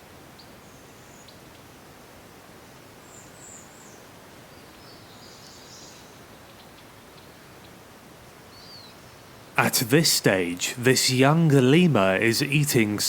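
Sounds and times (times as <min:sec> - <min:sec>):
steady forest hiss: 0:00.0 - 0:13.0
faint high chirping calls: 0:08.5 - 0:09.0.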